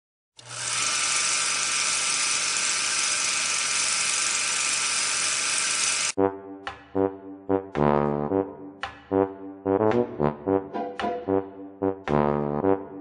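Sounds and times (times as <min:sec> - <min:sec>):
loud whirring hiss: 0:00.6 - 0:06.2
brass music: 0:06.2 - 0:13.0.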